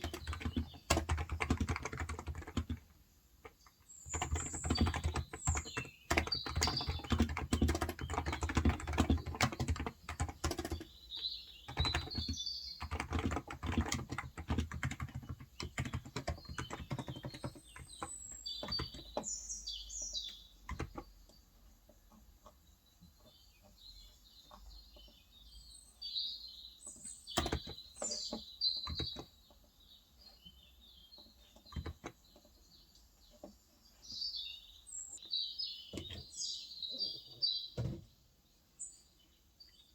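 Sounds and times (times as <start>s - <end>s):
keyboard typing: 0.0s - 10.9s, 11.7s - 19.3s, 20.6s - 21.1s, 27.4s - 28.2s, 28.8s - 29.3s, 31.6s - 32.2s
birds chirping: 0.0s - 39.9s.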